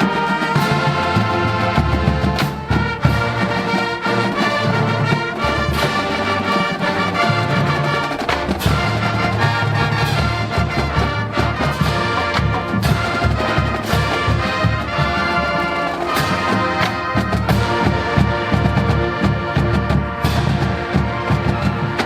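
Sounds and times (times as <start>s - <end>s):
brass chords: 0.0s - 22.0s
drum strikes: 0.0s - 22.0s.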